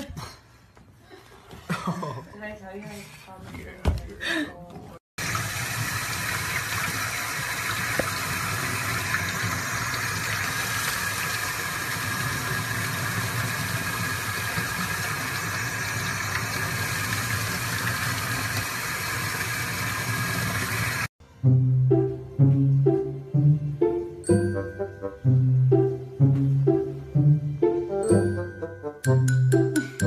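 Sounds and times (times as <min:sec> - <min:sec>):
faucet water splashing: 0:05.2 - 0:21.1.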